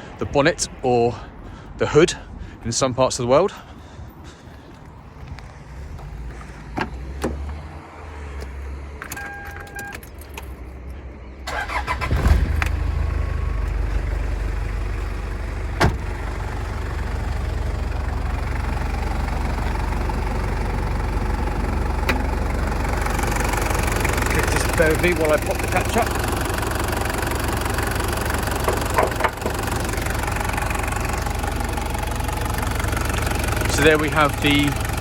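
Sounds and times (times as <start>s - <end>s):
diesel engine starting and idling: 5.6s - 35.0s
short beep: 9.1s - 10.0s.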